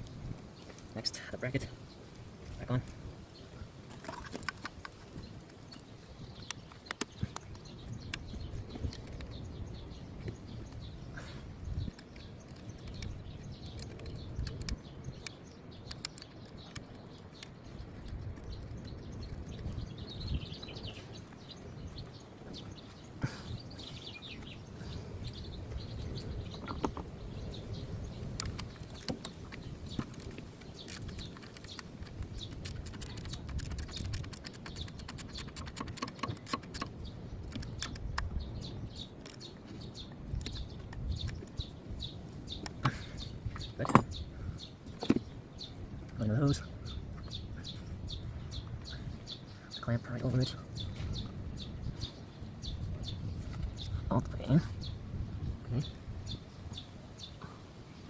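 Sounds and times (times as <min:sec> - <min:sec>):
birds chirping: 0:00.0 - 0:58.0
quick clicks: 0:11.9 - 0:19.8, 0:28.2 - 0:38.4
metal tools clicking and knocking: 0:43.7 - 0:44.2.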